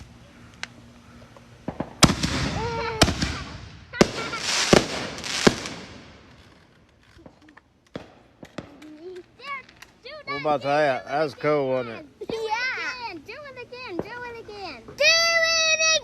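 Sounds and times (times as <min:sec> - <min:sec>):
scattered firework pops: 0:01.4 - 0:10.0
firework bangs: 0:01.6 - 0:09.8, 0:13.9 - 0:14.4
firework crackling: 0:01.6 - 0:16.0.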